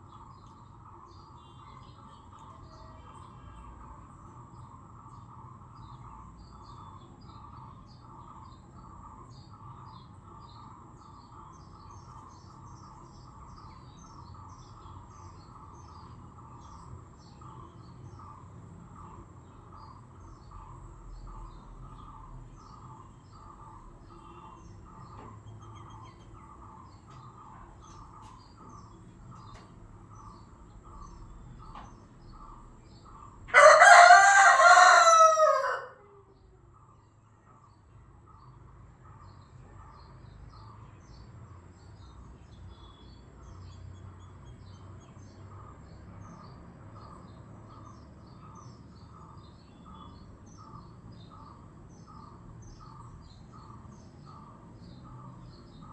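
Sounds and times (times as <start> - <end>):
small birds chirping: 0.0 - 55.9
rooster crowing: 33.5 - 36.1.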